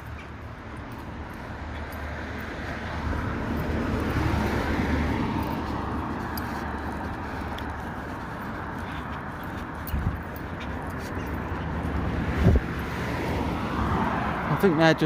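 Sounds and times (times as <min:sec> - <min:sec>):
vehicle passing by: 0:00.0 - 0:15.0
wind rumble on microphone: 0:11.9 - 0:14.3.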